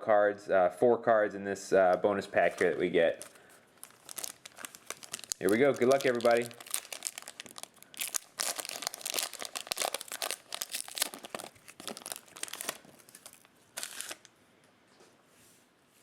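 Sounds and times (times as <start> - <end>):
foil wrapper crinkling and tearing: 2.4 - 14.3.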